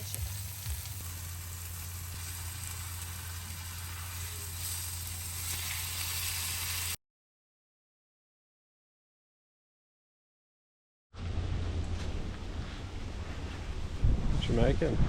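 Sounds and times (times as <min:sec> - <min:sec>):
food sizzling in a frying pan: 0:00.0 - 0:07.0
low hum: 0:11.2 - 0:15.0.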